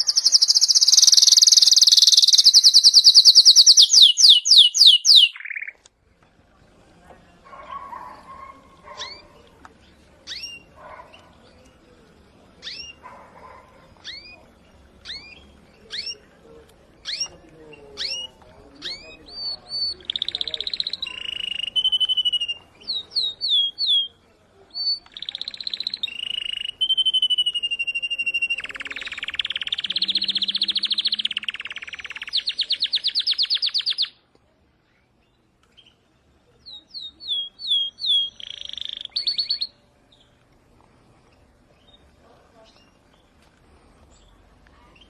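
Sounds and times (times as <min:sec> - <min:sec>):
canary singing: 0:00.0 - 0:05.8, 0:08.4 - 0:11.3, 0:12.6 - 0:13.1, 0:14.0 - 0:14.4, 0:15.0 - 0:16.2, 0:17.0 - 0:34.2, 0:36.6 - 0:40.2.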